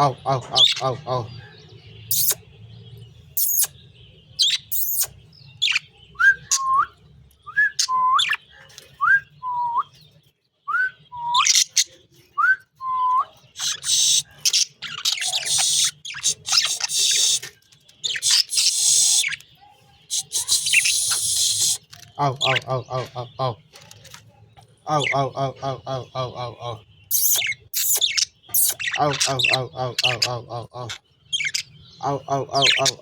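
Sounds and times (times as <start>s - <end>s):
budgerigars chirping: 0.0s - 6.8s, 13.4s - 23.4s, 24.9s - 33.0s.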